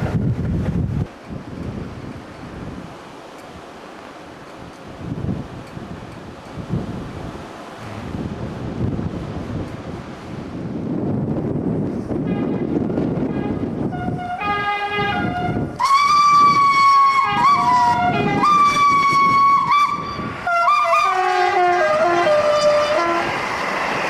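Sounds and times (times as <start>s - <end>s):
wind rumble on microphone: 0.0s - 3.7s, 4.3s - 24.0s
steam locomotive whistle: 13.2s - 23.4s.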